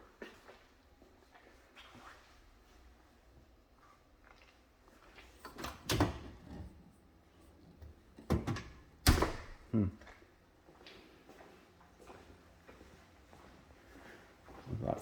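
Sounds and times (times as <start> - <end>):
door clunks and knocks: 8.3 - 9.6.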